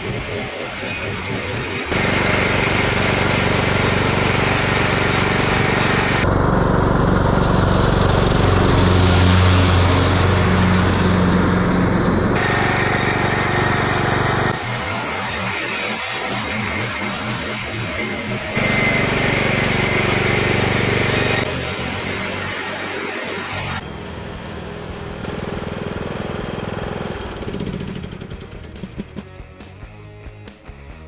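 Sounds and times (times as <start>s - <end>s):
lawn tractor engine drone: 0.0s - 29.3s
spinning blades cutting grass: 0.1s - 6.4s, 7.0s - 23.8s.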